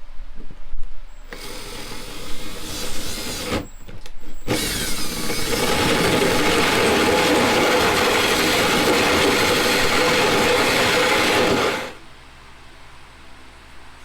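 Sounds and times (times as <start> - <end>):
handheld power tool running: 1.3 - 3.8, 4.5 - 12.0.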